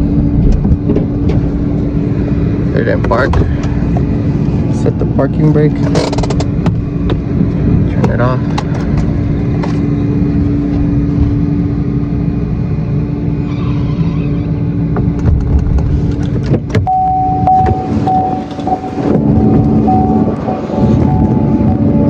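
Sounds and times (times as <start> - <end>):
truck engine running: 0.0 - 22.0
vehicle door chime: 16.8 - 21.9.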